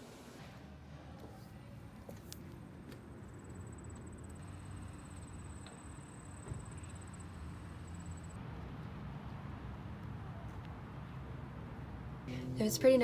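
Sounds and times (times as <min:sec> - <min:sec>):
high pulsing whine: 0:12.3 - 0:13.0
machine humming: 0:12.3 - 0:13.0.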